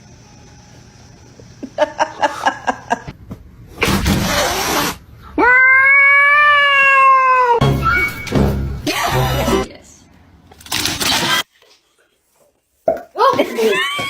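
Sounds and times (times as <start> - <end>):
laugh-like yelps: 13.5 - 14.0.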